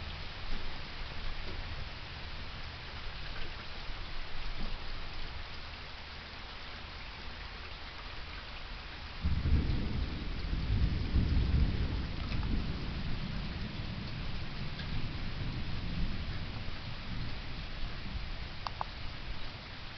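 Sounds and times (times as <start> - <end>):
steady rain falling: 0.0 - 19.9
low rumble of thunder: 9.2 - 19.8.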